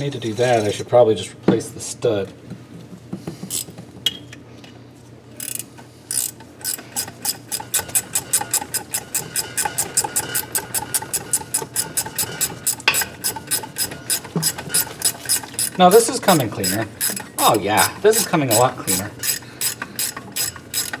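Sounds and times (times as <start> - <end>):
hand ratchet clicking: 3.4 - 3.7, 5.4 - 21.0.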